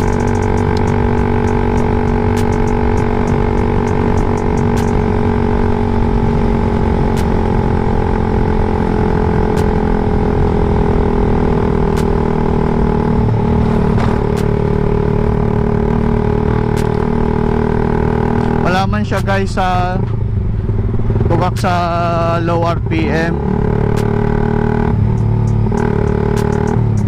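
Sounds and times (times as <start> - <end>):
sharp clicks: 0.0 - 5.0, 11.9 - 12.2, 25.1 - 27.0
motorcycle engine running loud: 0.0 - 27.0.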